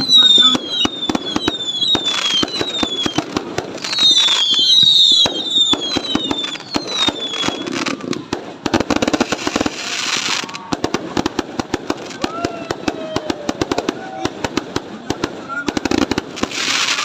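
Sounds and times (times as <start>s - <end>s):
falling whistle: 0.0s - 3.3s, 3.9s - 7.8s
firework bangs: 0.0s - 17.0s
firework crackling: 0.0s - 17.0s.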